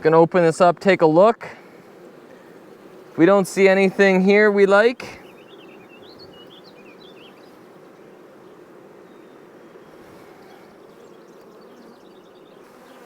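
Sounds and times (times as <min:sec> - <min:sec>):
honeybees buzzing: 0:00.0 - 0:13.0
bird chirps: 0:05.1 - 0:08.2, 0:09.0 - 0:12.7.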